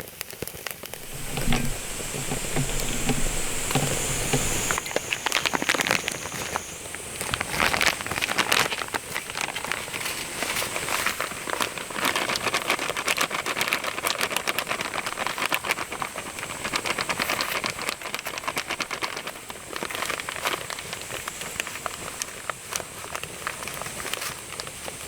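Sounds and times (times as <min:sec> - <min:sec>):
fire popping and crackling: 0:00.8 - 0:09.4
food sizzling over campfire: 0:00.8 - 0:12.0.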